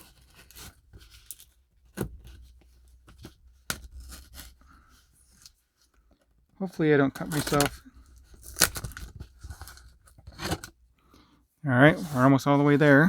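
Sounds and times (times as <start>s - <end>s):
blade cutting cardboard box: 7.2s - 10.7s.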